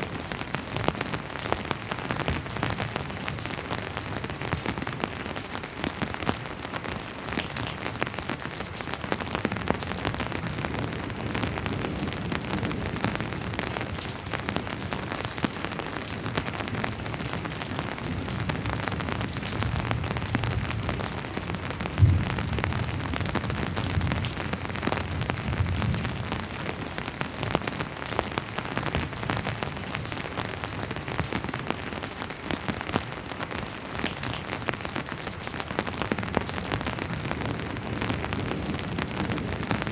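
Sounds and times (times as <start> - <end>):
rain falling: 0.0 - 39.9
distant thunder: 21.9 - 24.3.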